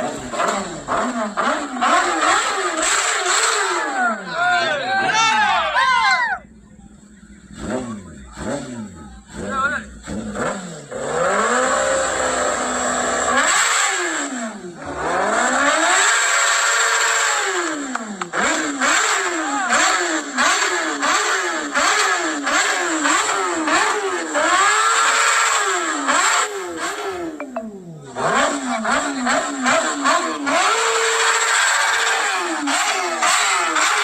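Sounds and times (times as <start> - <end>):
motorcycle engine revving: 0.0 - 4.3, 6.5 - 34.0.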